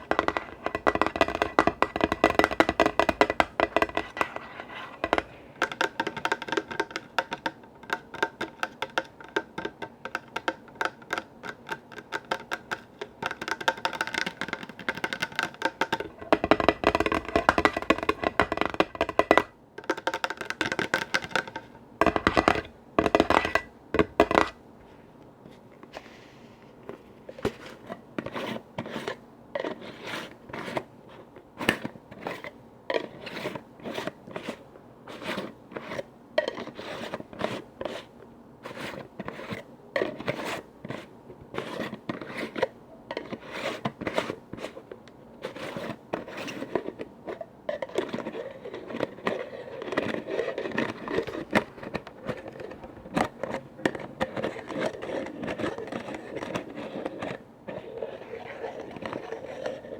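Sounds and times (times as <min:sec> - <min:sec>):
tapping on containers: 0:00.0 - 0:04.4, 0:05.0 - 0:24.6
scratching: 0:45.4 - 0:59.9.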